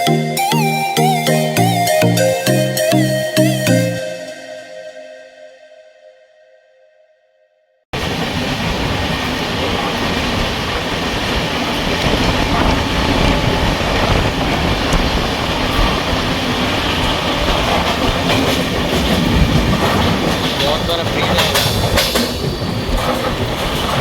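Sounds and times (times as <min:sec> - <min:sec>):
train wheels rumbling on track: 0:08.0 - 0:24.0.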